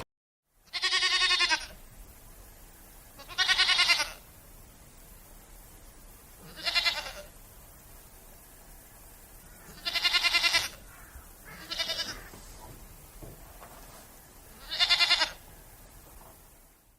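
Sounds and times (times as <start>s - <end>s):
goat bleating: 0.7s - 1.8s, 3.2s - 4.2s, 6.4s - 7.3s, 9.6s - 12.4s, 14.5s - 15.4s.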